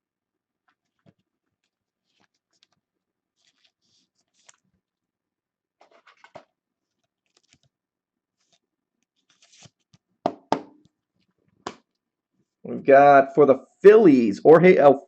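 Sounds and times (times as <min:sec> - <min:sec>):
cards scraping and rustling: 0:00.7 - 0:04.8, 0:05.8 - 0:10.1.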